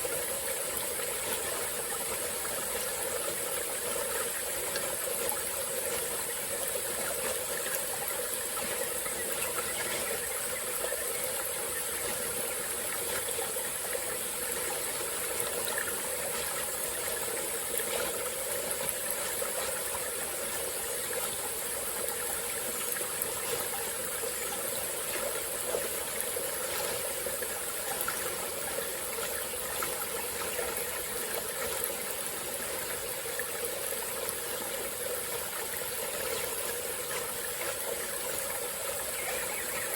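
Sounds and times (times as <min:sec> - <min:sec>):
constant high-pitched hiss: 0:00.0 - 0:39.9
stream flowing over rocks: 0:00.0 - 0:39.9.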